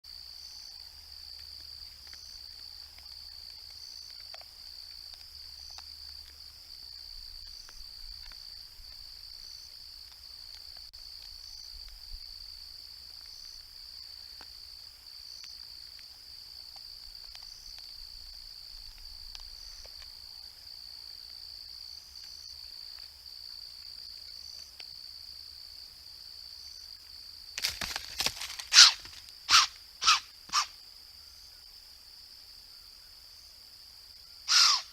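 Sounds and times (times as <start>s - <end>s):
insects droning: 0.1s - 34.9s
loud harsh animal noises: 28.7s - 30.7s, 34.5s - 34.9s.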